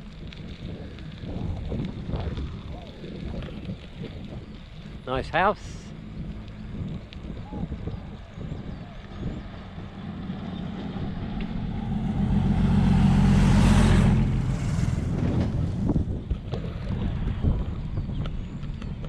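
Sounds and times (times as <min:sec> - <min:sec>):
vehicle passing close by: 0:09.0 - 0:16.1.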